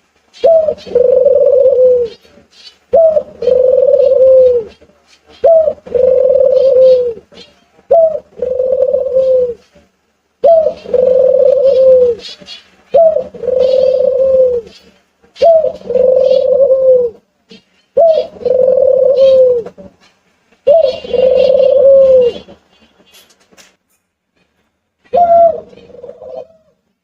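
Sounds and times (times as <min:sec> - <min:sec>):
bird cooing: 0:00.4 - 0:02.3, 0:02.9 - 0:09.6, 0:10.4 - 0:19.8, 0:20.7 - 0:22.5, 0:25.1 - 0:26.8.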